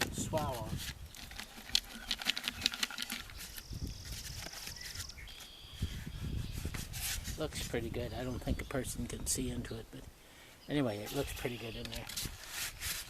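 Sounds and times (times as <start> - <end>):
songbird trilling: 1.9 - 6.7, 10.6 - 12.1.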